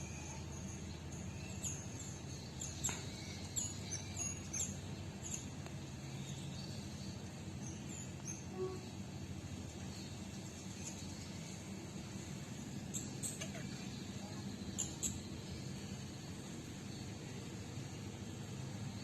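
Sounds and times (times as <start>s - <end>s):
low background rumble: 0.0s - 19.0s
small birds chirping: 0.0s - 19.0s.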